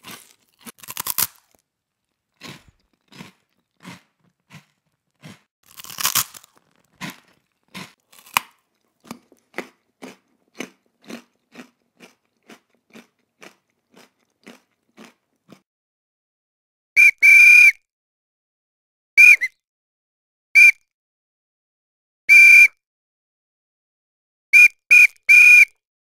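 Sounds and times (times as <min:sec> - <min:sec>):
person crunching with mouth: 0:00.0 - 0:15.6.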